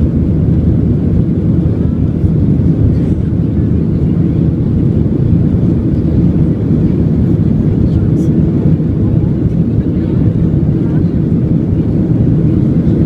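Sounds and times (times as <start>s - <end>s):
airplane engines droning: 0.0s - 13.0s.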